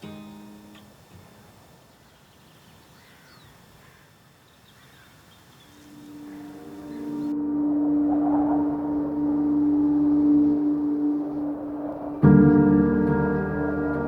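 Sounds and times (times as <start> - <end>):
acoustic guitar notes: 0.0 - 1.4, 5.9 - 11.2
quiet outdoor ambience: 0.0 - 14.0
bird chirps: 1.9 - 14.0
soft sustained music tone: 5.7 - 14.0.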